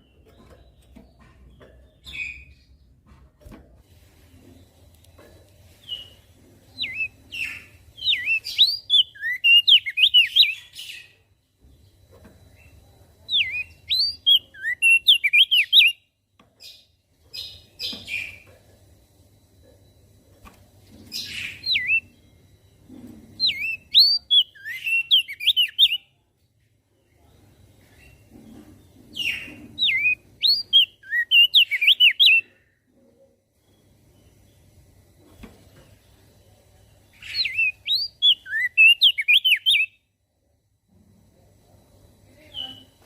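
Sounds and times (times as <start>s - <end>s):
bird singing whistled notes: 6.8s - 11.1s, 13.3s - 16.0s, 21.2s - 22.2s, 23.4s - 26.1s, 29.8s - 32.5s, 37.2s - 40.0s.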